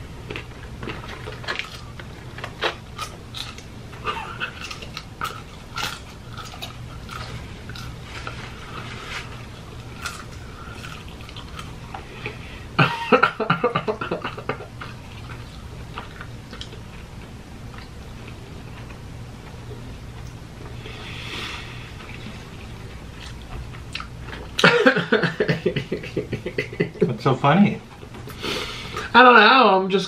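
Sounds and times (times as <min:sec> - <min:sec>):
low steady hum: 0:00.0 - 0:30.0
chewing and crunching: 0:00.2 - 0:12.7, 0:14.1 - 0:24.6
burst of laughter: 0:12.8 - 0:14.7.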